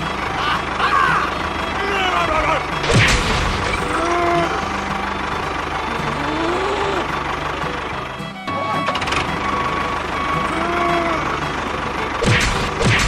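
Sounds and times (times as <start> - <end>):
small tractor engine running: 0.0 - 13.0
sharp knock: 12.2 - 13.0.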